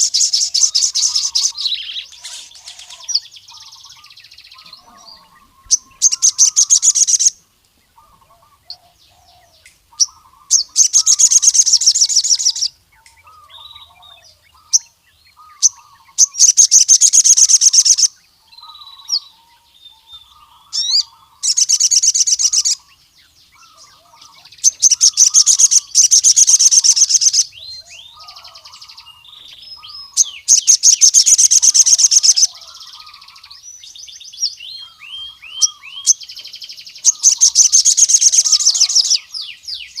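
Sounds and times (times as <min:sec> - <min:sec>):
bird rapid high trills: 0:00.0 - 0:07.4, 0:09.9 - 0:12.7, 0:13.5 - 0:18.2, 0:20.4 - 0:23.0, 0:23.6 - 0:27.5, 0:28.1 - 0:33.6, 0:34.9 - 0:39.3
bird soft chirps: 0:00.0 - 0:40.0.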